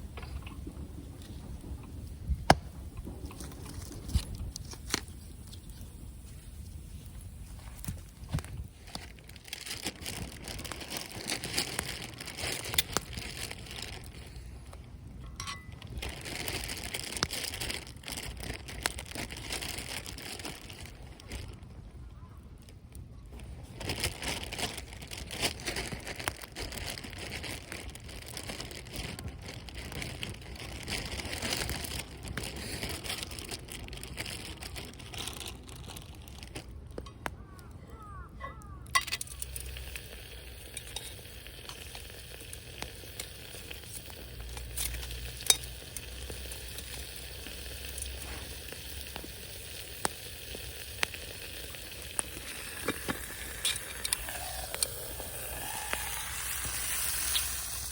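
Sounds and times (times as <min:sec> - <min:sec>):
sizzling and crackling over wood fire: 0:00.0 - 0:57.9
sharp pops: 0:02.4 - 0:05.7.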